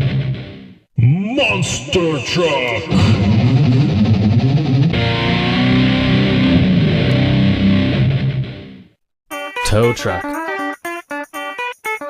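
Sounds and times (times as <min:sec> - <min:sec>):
distorted electric guitar riff: 0:00.0 - 0:00.8, 0:01.5 - 0:09.0.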